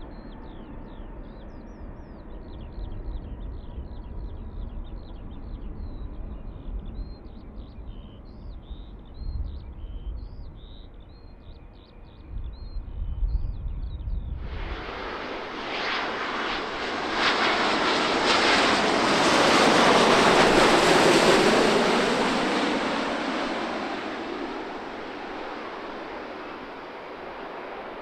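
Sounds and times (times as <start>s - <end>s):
low gusting rumble: 12.4s - 28.0s
jet engines roaring: 14.4s - 28.0s.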